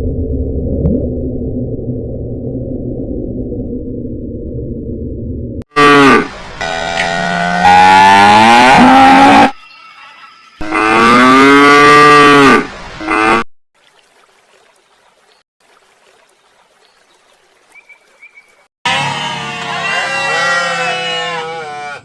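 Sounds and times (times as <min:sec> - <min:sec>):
cow mooing: 0:05.8 - 0:09.5, 0:10.6 - 0:13.4, 0:18.9 - 0:22.0.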